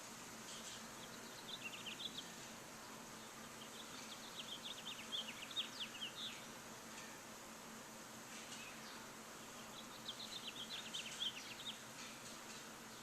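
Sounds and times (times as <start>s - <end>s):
steady background hiss: 0.0s - 13.0s
small bird chirping: 0.5s - 2.4s, 3.2s - 7.2s, 8.5s - 13.0s.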